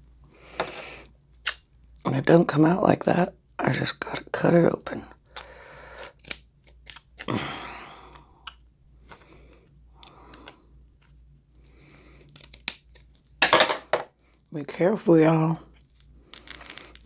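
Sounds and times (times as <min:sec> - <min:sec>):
crab shell crunching: 0:05.2 - 0:09.4, 0:11.8 - 0:13.2
scissors snipping crab shell: 0:05.3 - 0:07.3.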